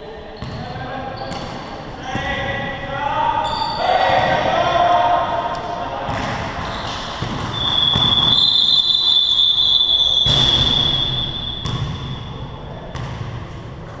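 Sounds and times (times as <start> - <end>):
ball bouncing on court: 0.4 - 2.4, 4.0 - 8.5, 10.1 - 13.6
high-pitched whistle or buzzer: 7.5 - 12.3.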